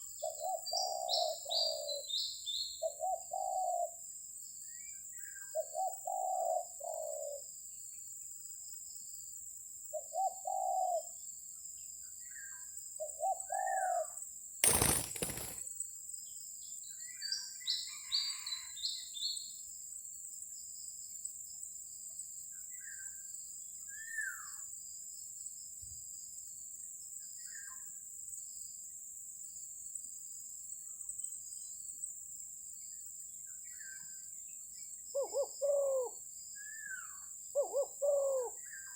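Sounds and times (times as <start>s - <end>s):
air rifle shot: 14.6s - 15.6s
insect drone: 14.6s - 15.6s
small birds chirping: 14.6s - 15.6s.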